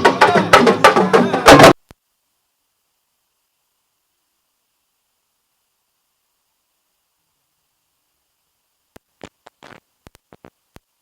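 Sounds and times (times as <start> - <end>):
sharp clicks and crackle: 8.9 - 10.9.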